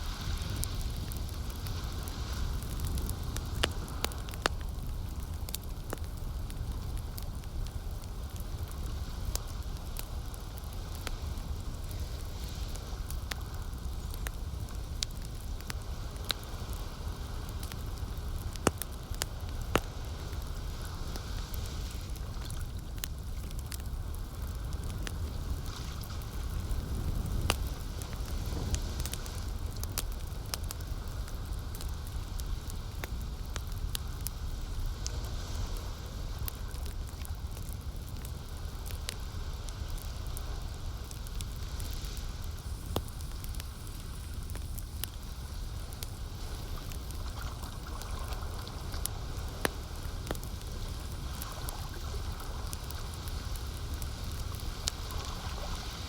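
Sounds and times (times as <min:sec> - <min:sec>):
campfire crackling and popping: 0:00.0 - 0:56.0
low rumble of flames: 0:00.0 - 0:56.0
lake water: 0:46.4 - 0:49.6.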